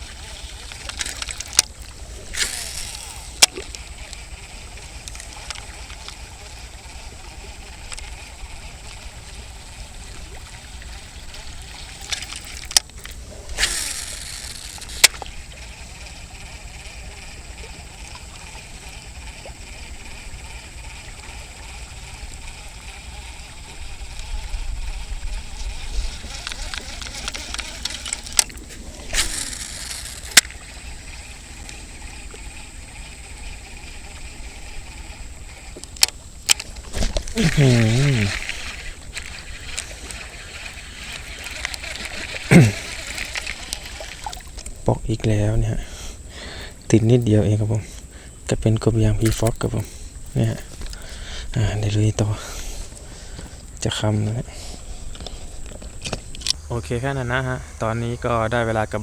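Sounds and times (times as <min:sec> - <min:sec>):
sharp clicks: 0:00.1 - 0:07.0, 0:11.0 - 0:45.3
wind rumbling on microphone: 0:19.1 - 0:46.0
wind buffeting microphone: 0:23.3 - 0:33.0.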